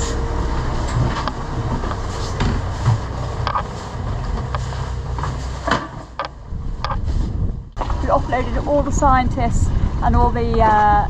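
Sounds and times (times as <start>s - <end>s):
knocks and clunks: 0.0s - 7.1s
boat engine hum: 0.0s - 11.0s.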